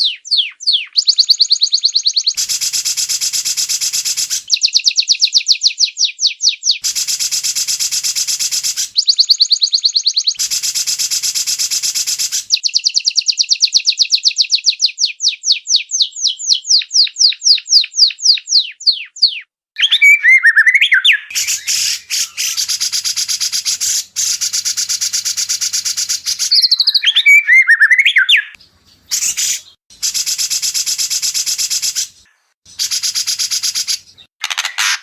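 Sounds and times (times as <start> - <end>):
bird whistled trills: 0.0 - 34.3
bird harsh rattles: 34.4 - 35.0.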